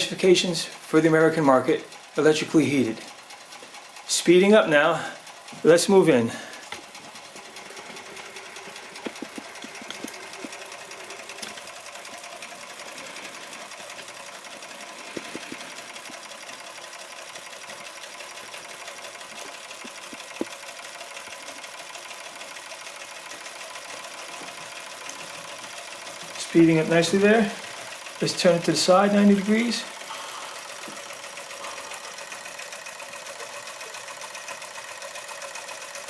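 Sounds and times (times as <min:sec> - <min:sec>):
sharp clicks: 0:19.3 - 0:20.6
toy steam engine puffing: 0:23.2 - 0:36.0.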